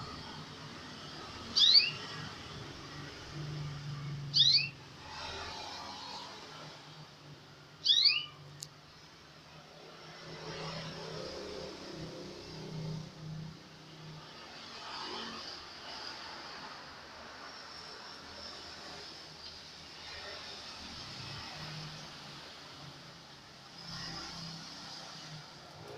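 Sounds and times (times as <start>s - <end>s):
canary chirping: 1.5s - 2.2s, 4.2s - 4.8s, 7.8s - 8.5s.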